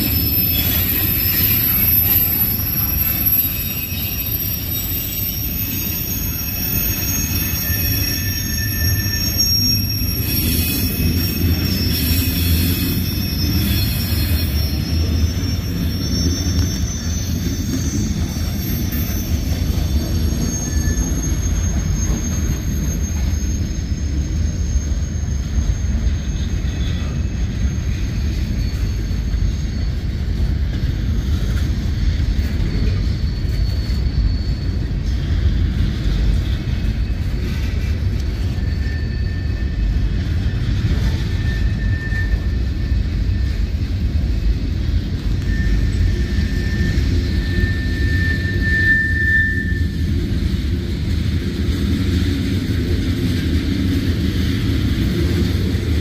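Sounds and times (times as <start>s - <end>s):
freight train wheels rumbling: 0.0s - 56.0s
high-pitched wheel squeal: 0.0s - 56.0s.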